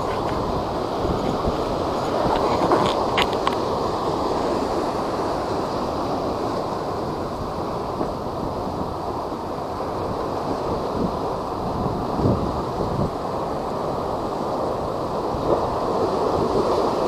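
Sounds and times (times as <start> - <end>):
strong wind rushing: 0.0 - 5.4, 10.0 - 16.6
high surf: 0.0 - 17.0
wind buffeting microphone: 0.0 - 17.0.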